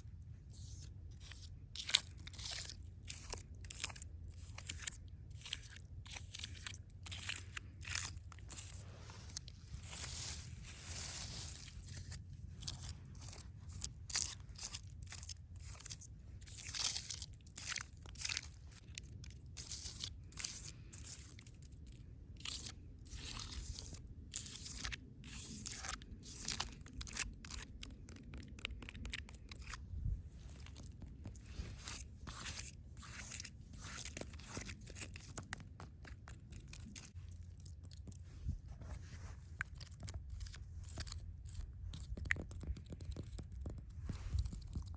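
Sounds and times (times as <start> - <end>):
dry forest material crunching: 6.4 - 18.9.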